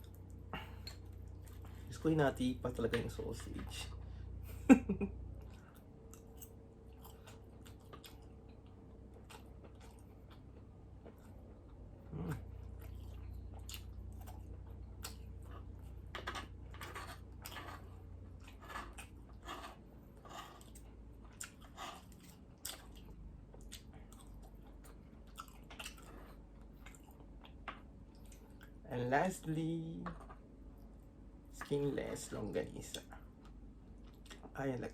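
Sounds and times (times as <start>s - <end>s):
chewing with wet mouth smacks: 0.0s - 1.9s, 5.4s - 28.8s, 32.9s - 34.6s
person humming: 12.1s - 12.5s.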